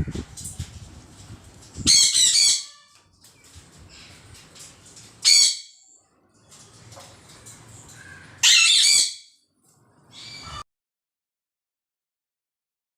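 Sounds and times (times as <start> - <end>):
parrot squawking: 1.8 - 3.0, 5.2 - 5.7, 8.0 - 9.4, 10.1 - 10.6.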